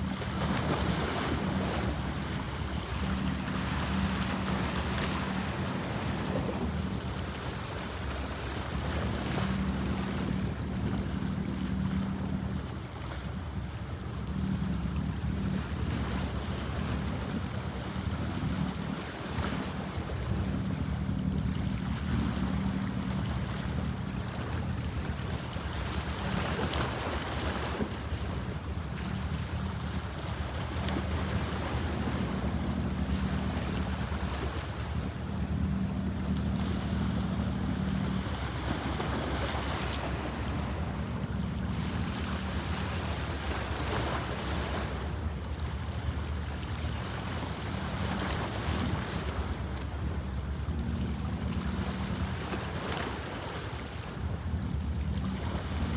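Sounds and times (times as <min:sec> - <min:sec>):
low hum: 0:00.0 - 0:55.9
sea waves splashing: 0:16.8 - 0:55.9.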